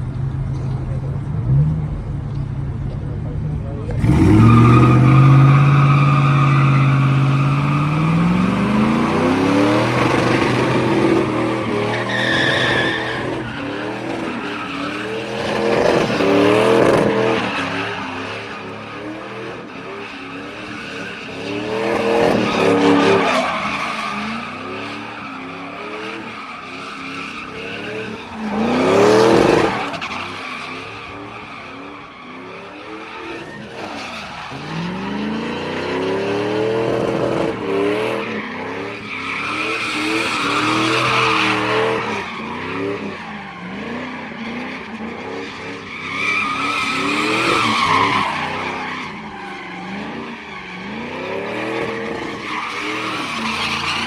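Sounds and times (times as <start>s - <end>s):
truck engine revving: 3.7s - 19.5s.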